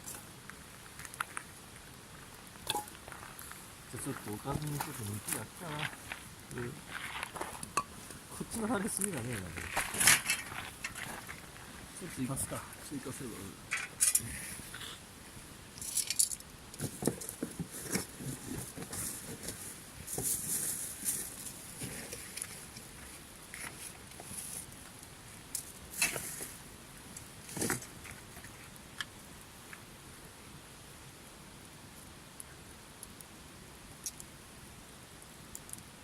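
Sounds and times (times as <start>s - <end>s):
charcoal clinking and clattering: 2.7s - 3.0s, 15.8s - 18.1s
rustling: 2.7s - 29.1s.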